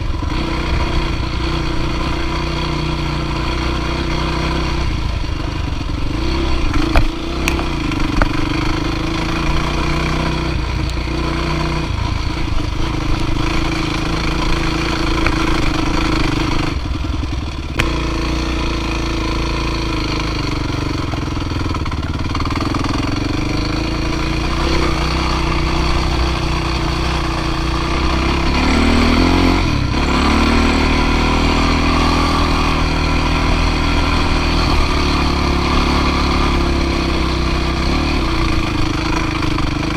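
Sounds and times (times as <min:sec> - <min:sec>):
dirt bike engine under load: 0:06.2 - 0:10.9.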